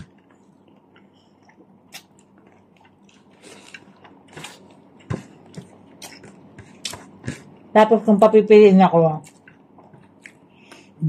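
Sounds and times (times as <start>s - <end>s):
chewing and biting: 0.0s - 7.6s.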